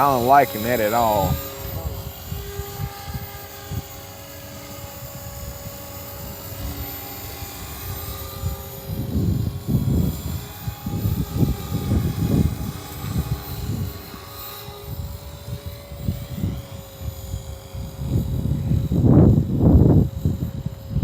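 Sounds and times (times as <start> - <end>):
helicopter rotor whine: 0.0 - 21.0
wind buffeting microphone: 0.0 - 21.0.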